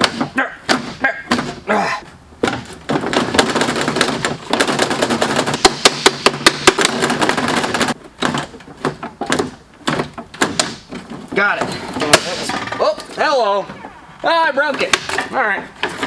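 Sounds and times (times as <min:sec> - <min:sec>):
plastic clips snapping and rattling: 0:02.4 - 0:13.2.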